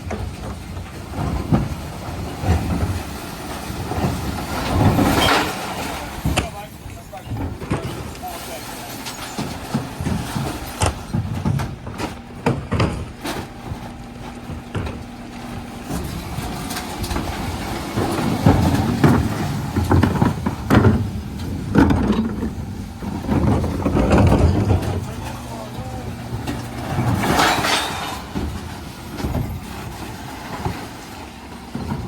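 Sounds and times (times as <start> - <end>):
bins being tipped rumbling: 0.0 - 32.0
truck engine hum: 0.0 - 32.0
sharp knocks and clatter: 9.0 - 32.0.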